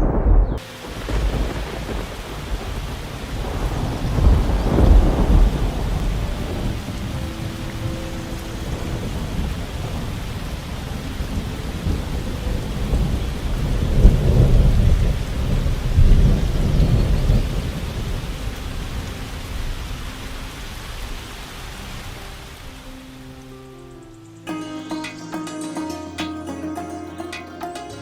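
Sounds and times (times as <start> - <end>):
thunder rolling: 0.0 - 19.7
steady rain: 0.0 - 24.3.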